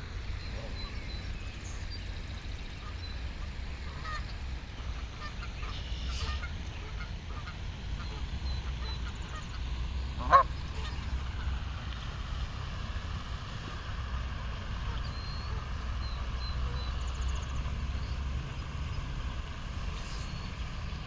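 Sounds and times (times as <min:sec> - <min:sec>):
goose honking: 0:05.2 - 0:11.6.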